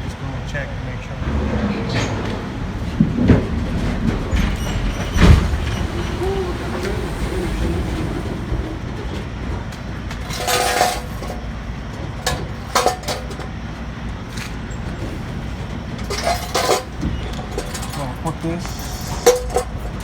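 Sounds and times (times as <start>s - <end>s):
diesel truck engine idling: 2.5s - 16.3s
air hissing burst: 5.2s - 9.0s.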